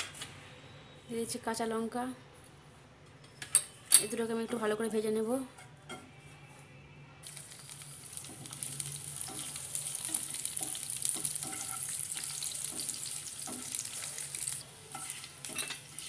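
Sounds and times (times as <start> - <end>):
leaves sizzling in hot oil: 7.2 - 16.0
spatula scraping and tapping pan: 9.2 - 16.0.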